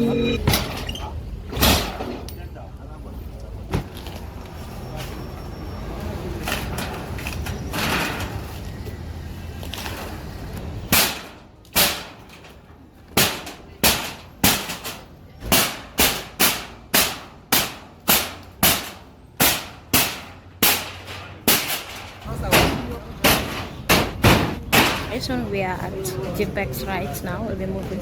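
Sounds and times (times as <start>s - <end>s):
hammer blows ringing: 0.0s - 0.4s.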